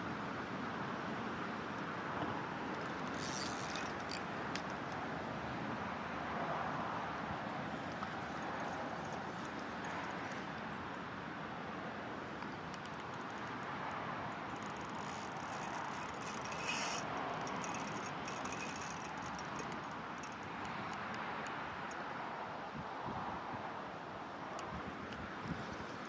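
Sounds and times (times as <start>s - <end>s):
rushing outdoor noise: 0.0s - 26.0s
faint clicks: 2.7s - 5.0s, 12.4s - 22.0s.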